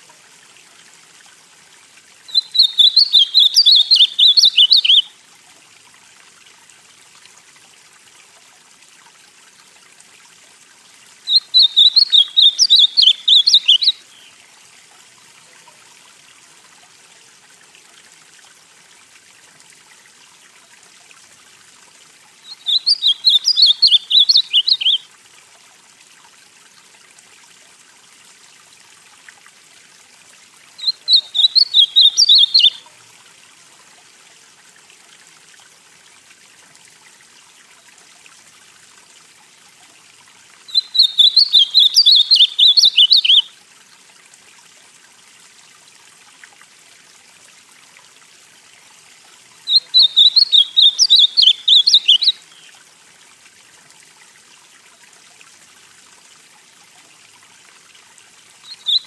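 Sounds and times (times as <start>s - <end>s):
faint steady hiss: 0.0s - 59.0s
bird singing warbled phrases: 2.3s - 5.1s, 11.3s - 14.4s, 22.4s - 25.0s, 30.8s - 32.9s, 40.7s - 43.5s, 49.7s - 52.7s, 58.6s - 59.0s.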